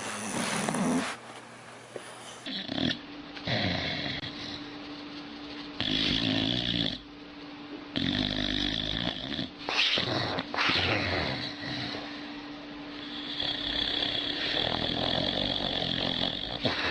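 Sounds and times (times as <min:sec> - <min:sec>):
dog snoring: 0:00.0 - 0:01.2, 0:02.2 - 0:04.8, 0:05.8 - 0:07.1, 0:07.9 - 0:12.3, 0:13.0 - 0:16.9.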